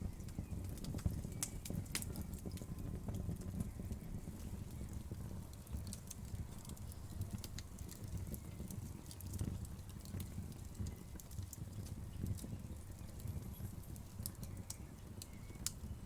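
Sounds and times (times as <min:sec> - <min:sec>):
fire crackling and popping: 0:00.0 - 0:16.0
low rumble of flames: 0:00.0 - 0:16.0.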